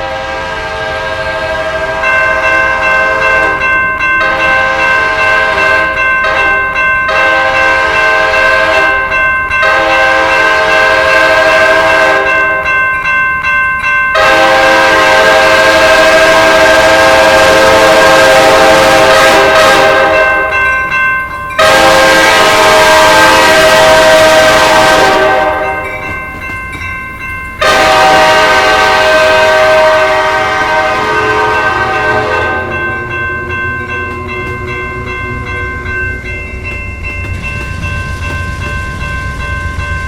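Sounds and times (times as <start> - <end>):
train air horn blasts: 0.0 - 3.6, 4.2 - 12.4, 14.2 - 20.5, 21.6 - 25.8, 27.6 - 35.9.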